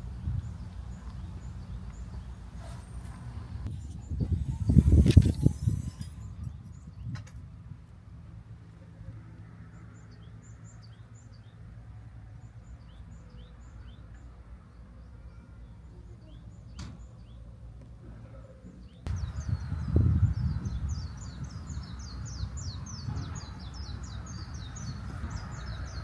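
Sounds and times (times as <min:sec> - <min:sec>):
small birds chirping: 0:00.0 - 0:07.2, 0:18.8 - 0:26.0.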